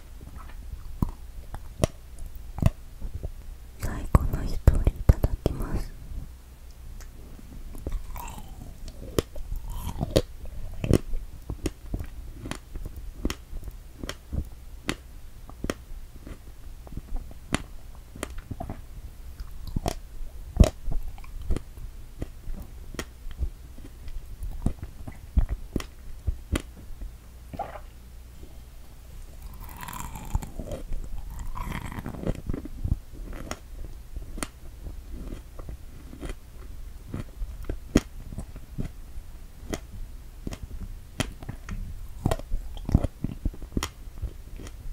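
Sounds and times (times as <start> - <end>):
biting into strawberry: 7.8 - 11.8, 29.4 - 33.6
wet chewing clicks and smacks: 7.8 - 18.8, 19.4 - 20.0, 20.6 - 25.9, 39.7 - 44.8.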